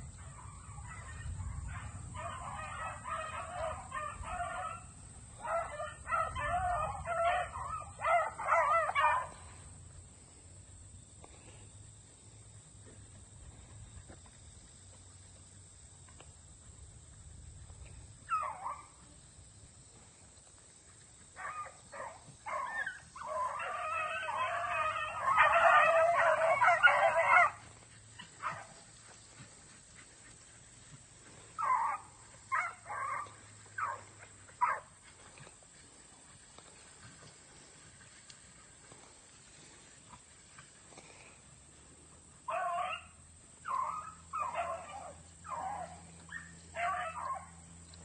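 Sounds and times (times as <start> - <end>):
dogs barking: 0.2 - 9.6, 18.3 - 19.0, 21.4 - 29.1, 31.3 - 35.3, 42.4 - 47.8.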